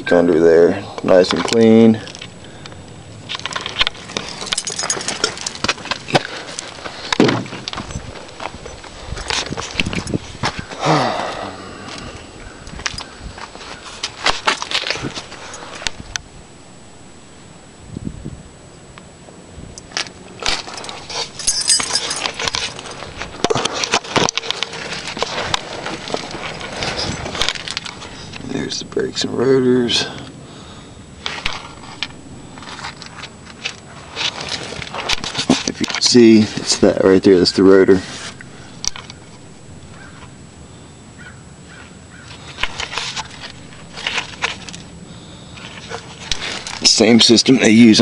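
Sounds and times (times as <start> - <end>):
rustling: 1.2 - 10.8, 11.9 - 17.3, 19.8 - 48.0
camera handling clicks and rustles: 22.0 - 28.4, 31.2 - 36.0, 38.3 - 39.2, 42.3 - 44.9.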